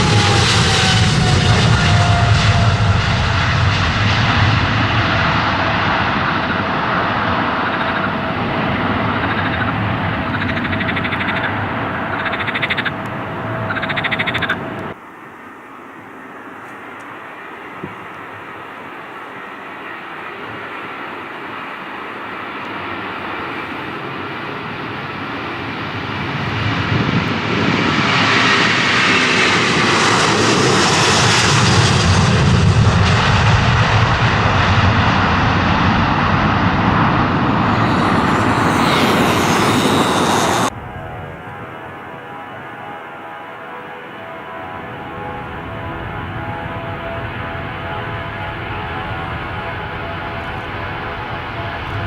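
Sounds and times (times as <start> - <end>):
airliner engine noise: 0.0 - 52.0.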